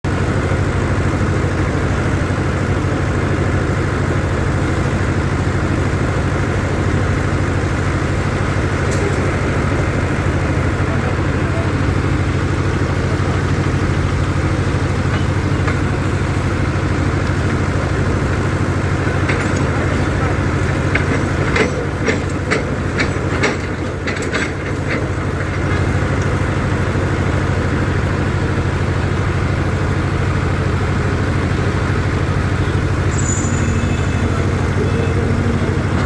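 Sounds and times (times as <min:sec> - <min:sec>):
diesel engine idling: 0:00.0 - 0:36.0.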